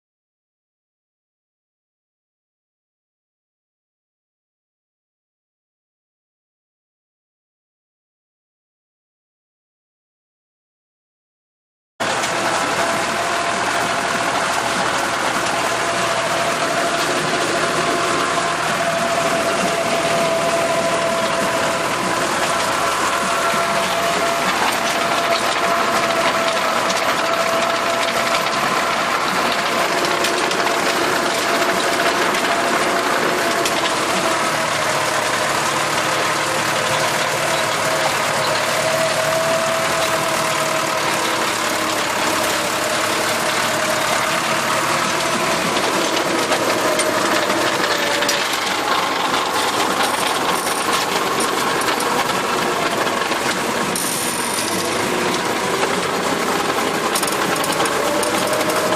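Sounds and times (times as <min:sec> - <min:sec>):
steady whining tones: 0:12.0 - 0:58.9
tiller mechanical clatter: 0:12.0 - 0:58.9
tractor engine drone: 0:12.0 - 0:58.9.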